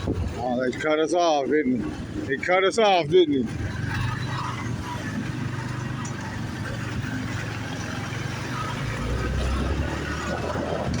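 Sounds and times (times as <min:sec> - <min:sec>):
road noise: 0:00.0 - 0:11.0
motorbike engine running: 0:03.4 - 0:09.2.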